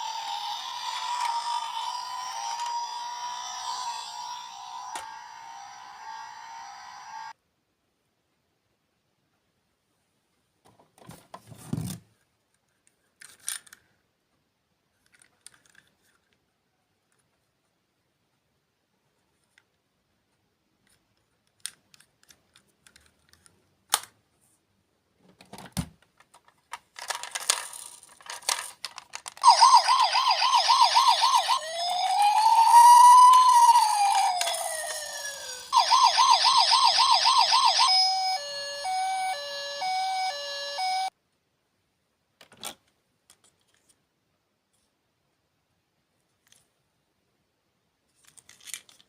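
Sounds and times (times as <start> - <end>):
electronic siren: 0.0 - 7.3, 29.4 - 41.1
handling clicks and rustling: 10.7 - 14.0, 14.9 - 16.5, 20.8 - 24.2, 25.2 - 35.9, 48.1 - 49.0.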